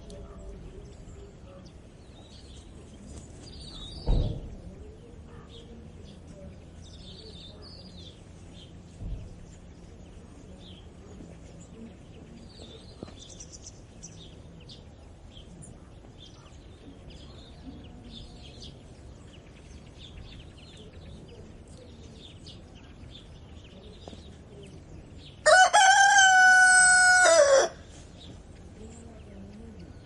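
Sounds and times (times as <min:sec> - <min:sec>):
small birds chirping faintly: 0:00.0 - 0:30.0
rooster crowing: 0:25.4 - 0:27.8.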